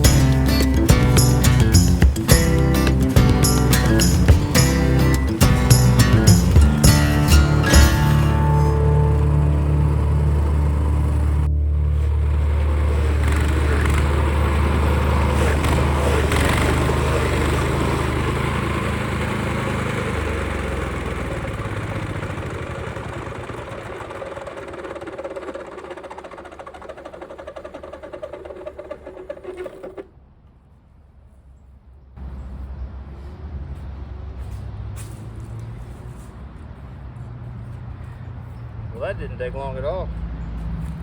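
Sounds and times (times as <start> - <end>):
cutting wheel grinding stump: 0.0 - 30.1
stump grinder engine running: 0.0 - 30.1.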